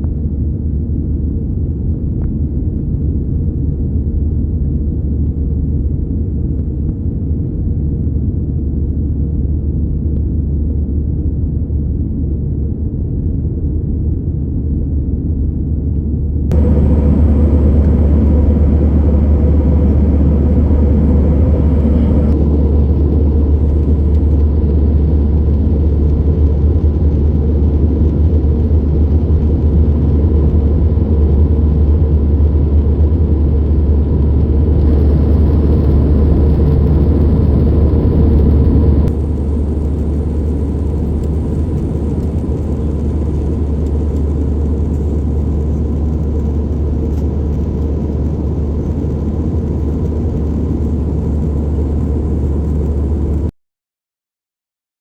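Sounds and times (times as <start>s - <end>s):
airplane engines rumbling in cabin: 13.2s - 53.5s.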